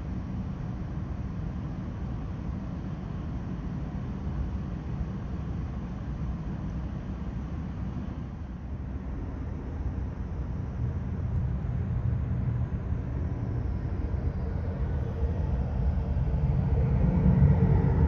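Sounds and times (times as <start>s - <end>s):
airliner engines rumbling: 0.1s - 18.0s
high engine whine: 8.7s - 18.0s.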